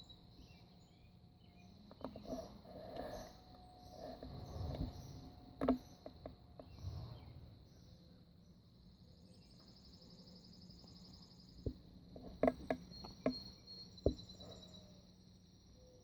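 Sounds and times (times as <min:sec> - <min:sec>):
insects trilling: 0:00.0 - 0:06.9.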